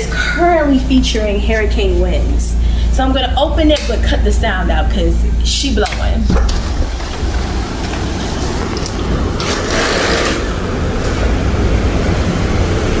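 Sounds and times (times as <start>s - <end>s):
wind buffeting microphone: 6.0s - 13.0s.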